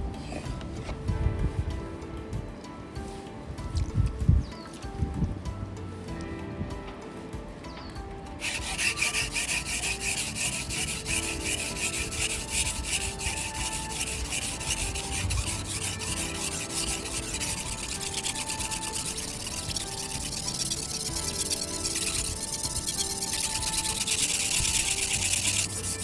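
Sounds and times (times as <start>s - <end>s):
knife scraping on whetstone: 8.4s - 26.0s.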